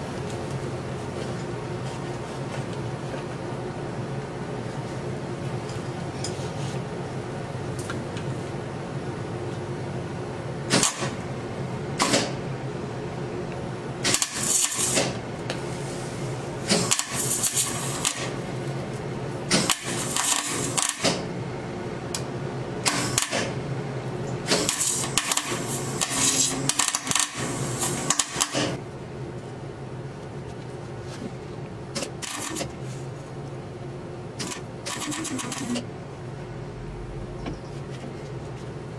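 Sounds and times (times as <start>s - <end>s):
electrical hum: 0.0s - 38.9s
arc welding crackling: 14.0s - 15.1s, 16.7s - 18.4s, 19.5s - 21.1s, 24.5s - 28.8s.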